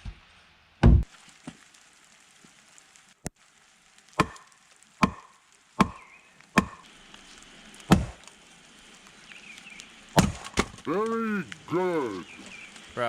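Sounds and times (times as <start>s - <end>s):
hand tool chopping wood: 4.2s - 4.4s, 5.0s - 6.0s, 6.6s - 6.8s, 7.9s - 8.2s, 10.2s - 10.8s.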